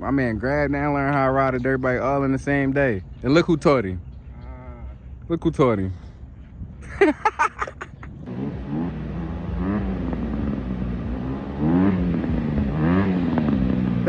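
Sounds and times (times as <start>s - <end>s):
dirt bike engine revving: 8.2s - 14.0s.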